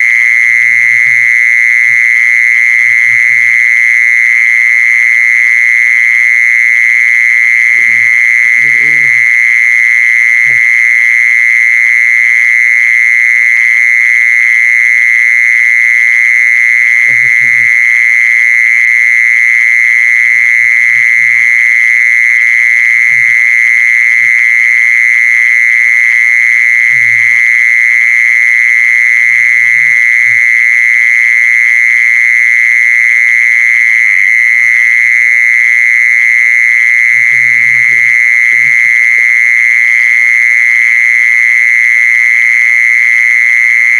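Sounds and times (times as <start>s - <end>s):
insect buzzing song: 7.4s - 10.9s, 16.8s - 18.0s, 36.8s - 39.6s.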